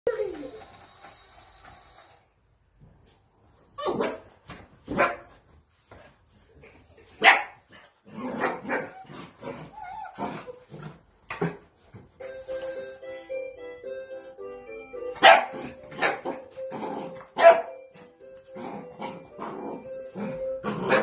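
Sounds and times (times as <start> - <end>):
puppies barking: 15.2 - 21.0.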